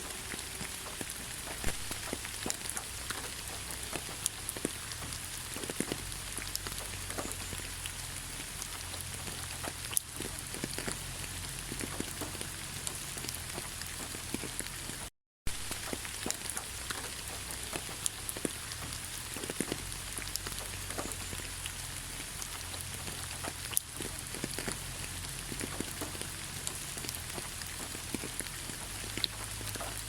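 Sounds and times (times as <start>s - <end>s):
raindrops pattering on surfaces: 0.0s - 30.0s
steady rain: 0.0s - 30.0s.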